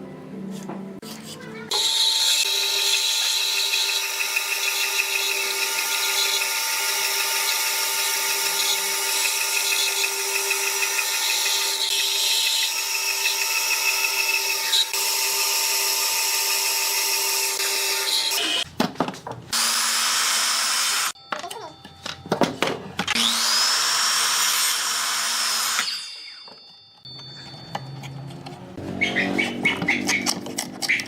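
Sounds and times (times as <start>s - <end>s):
power tool motor whining: 1.7s - 18.6s.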